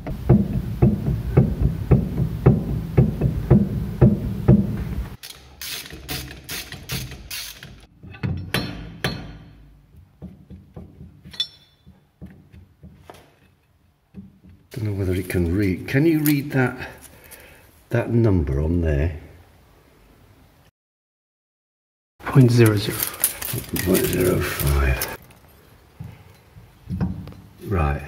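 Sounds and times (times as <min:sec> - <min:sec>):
metallic clink-clank from differential: 0:11.2 - 0:11.9.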